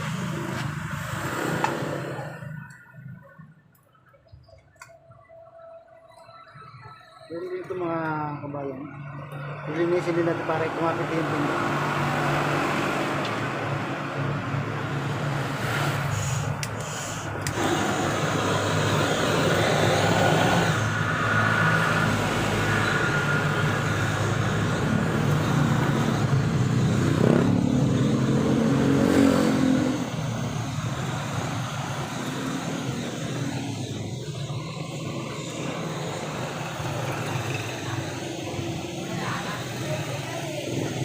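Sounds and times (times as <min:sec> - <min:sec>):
vehicle engine running: 0:16.0 - 0:41.0.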